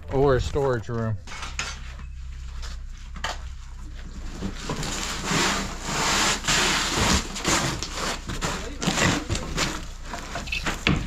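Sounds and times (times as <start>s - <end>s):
heavy appliance scraping on wood: 4.2s - 10.9s.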